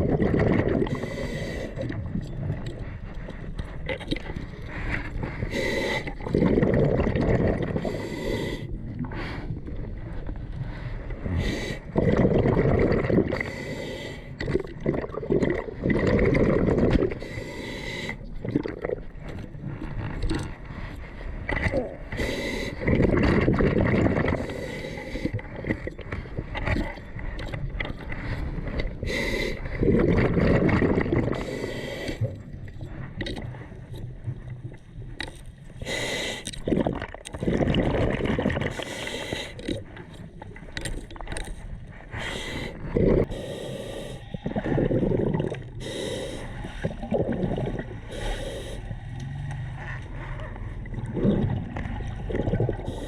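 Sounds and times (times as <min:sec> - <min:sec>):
gurgling underwater bubbles: 0:00.0 - 0:53.0
diver breathing: 0:00.7 - 0:06.7, 0:07.4 - 0:14.8, 0:15.5 - 0:27.4, 0:28.0 - 0:33.9, 0:35.7 - 0:36.7, 0:38.6 - 0:51.2, 0:51.8 - 0:53.0
sharp clicks and scrapes: 0:39.5 - 0:41.8.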